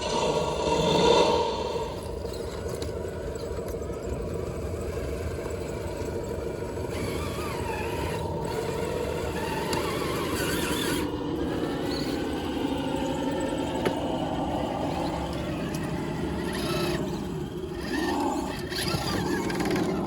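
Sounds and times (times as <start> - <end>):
low rumble: 0.0 - 3.6
rc car motor whining: 1.8 - 20.0.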